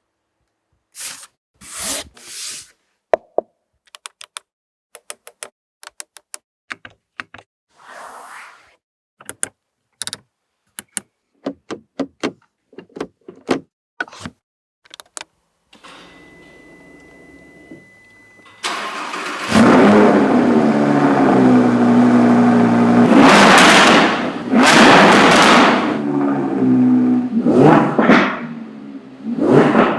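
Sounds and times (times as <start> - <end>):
sharp clicks and knocks: 14.8 - 15.3
car engine starting and revving: 18.6 - 29.9.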